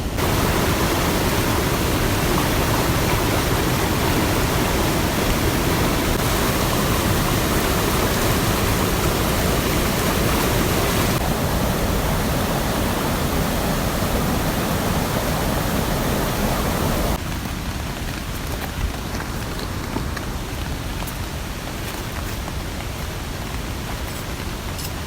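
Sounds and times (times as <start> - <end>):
stream rushing: 0.0 - 25.0.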